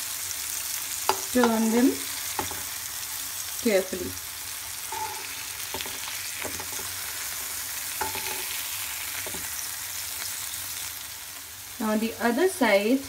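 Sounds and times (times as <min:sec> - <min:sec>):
vegetables sizzling in oil: 0:00.0 - 0:13.0
spatula scraping a pan: 0:04.8 - 0:09.7.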